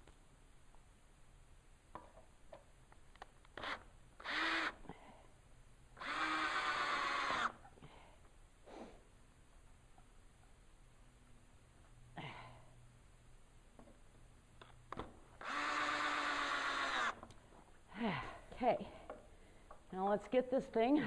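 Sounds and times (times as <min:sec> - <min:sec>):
power drill spinning: 0:03.5 - 0:04.8, 0:06.0 - 0:07.7, 0:15.4 - 0:17.4.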